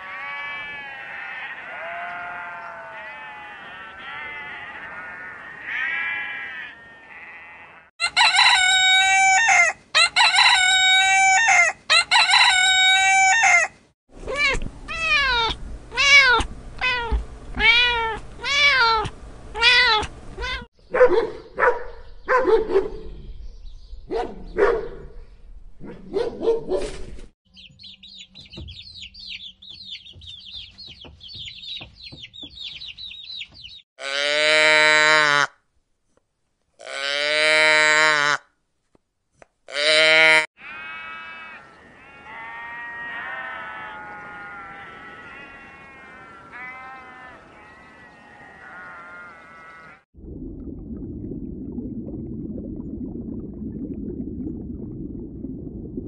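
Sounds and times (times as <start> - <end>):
goat bleating: 0.0 - 7.9, 39.7 - 50.0
cat meowing: 14.3 - 20.7
chicks peeping: 27.5 - 33.8
cow mooing: 39.7 - 50.0
long loud animal calls: 40.6 - 50.0.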